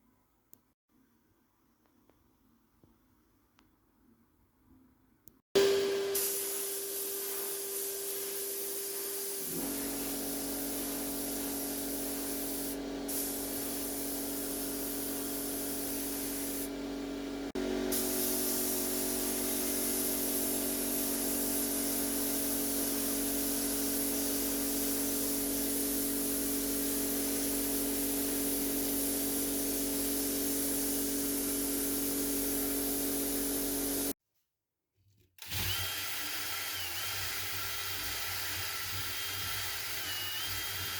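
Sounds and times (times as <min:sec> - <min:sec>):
power tool motor whine: 0:35.4 - 0:37.6, 0:38.9 - 0:40.9.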